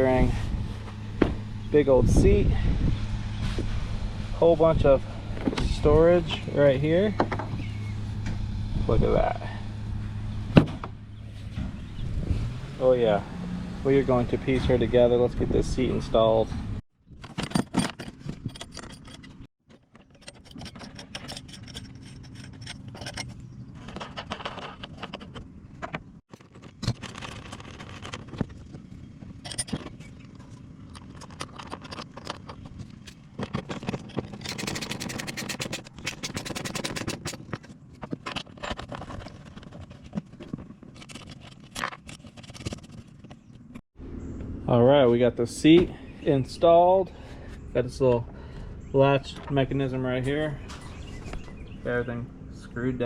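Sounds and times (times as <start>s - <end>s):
seat frame scraping and clicking: 17.2s - 43.8s.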